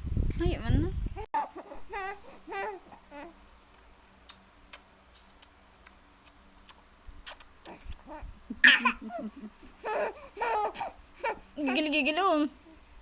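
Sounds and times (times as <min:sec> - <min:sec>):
baby babbling: 0:01.4 - 0:03.4, 0:09.8 - 0:11.5
baby smacking and sucking: 0:04.3 - 0:08.1
baby squealing: 0:09.8 - 0:11.4.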